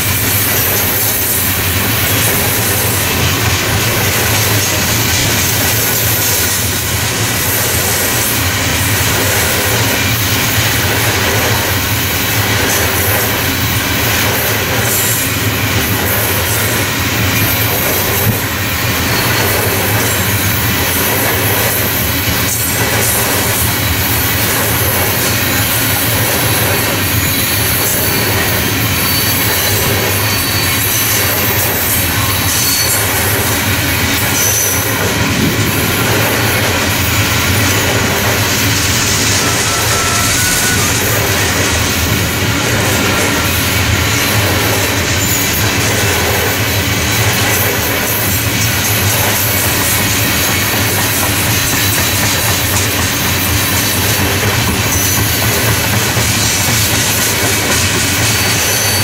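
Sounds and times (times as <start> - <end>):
train wheels on rail: 0.0 - 59.0
high wheel squeal: 16.2 - 21.2, 21.8 - 35.2, 36.3 - 45.9, 48.1 - 59.0.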